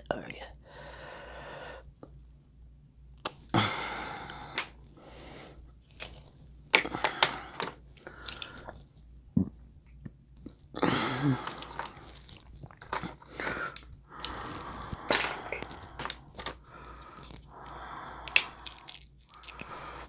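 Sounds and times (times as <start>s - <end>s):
shells cracking and crunching: 5.9s - 8.7s, 11.4s - 20.0s
person chewing and biting: 11.6s - 20.0s.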